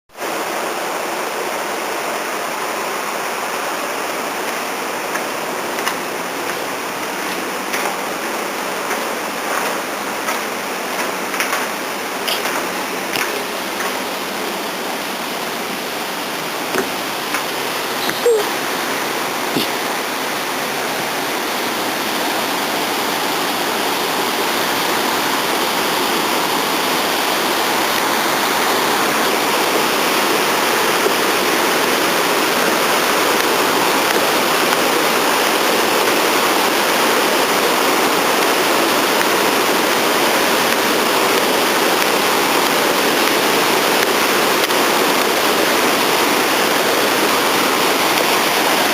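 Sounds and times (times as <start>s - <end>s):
waterfall rushing: 0.1s - 48.9s.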